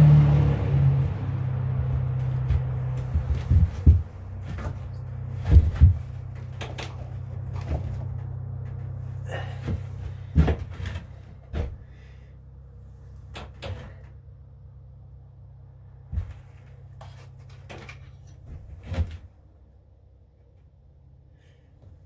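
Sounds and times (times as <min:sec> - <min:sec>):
steady low hum: 0:00.0 - 0:22.0
knocks and clunks: 0:02.0 - 0:12.0.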